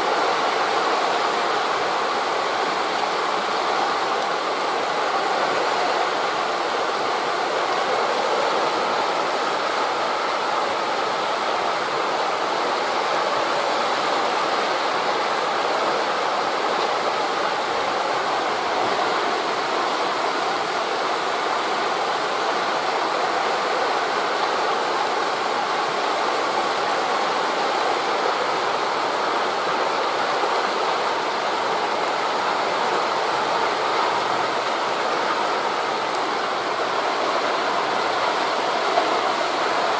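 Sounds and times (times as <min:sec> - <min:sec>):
wind through forest leaves: 0:00.0 - 0:39.9.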